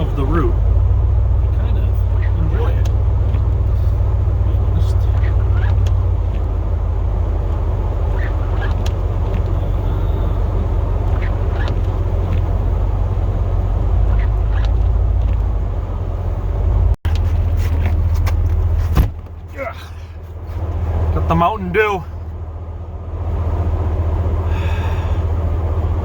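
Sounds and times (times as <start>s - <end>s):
truck engine drone: 0.0s - 26.0s
short squeaks and ticks: 5.0s - 6.6s, 7.5s - 12.6s, 14.0s - 15.5s.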